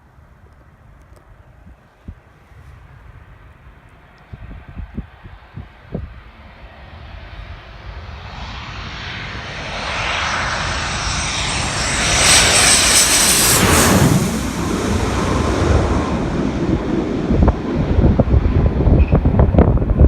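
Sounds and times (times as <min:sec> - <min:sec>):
jet engines roaring: 0:04.0 - 0:20.0
high engine whine: 0:06.3 - 0:20.0.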